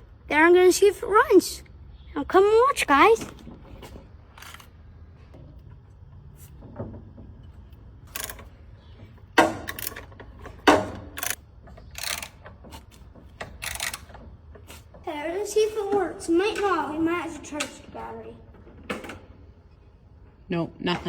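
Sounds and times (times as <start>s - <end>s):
knocks and clunks: 5.2s - 15.1s.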